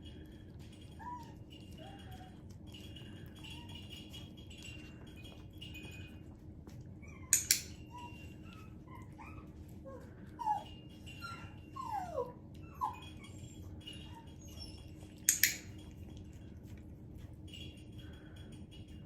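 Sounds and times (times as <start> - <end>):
dog whimpering: 0.9 - 2.5, 7.0 - 15.6.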